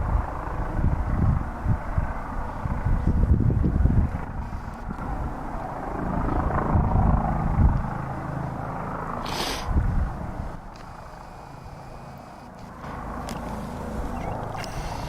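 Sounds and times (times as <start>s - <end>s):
wind buffeting the microphone: 0.0s - 8.2s, 9.6s - 11.9s
helicopter running: 0.0s - 15.0s
brief hiss: 9.3s - 9.7s.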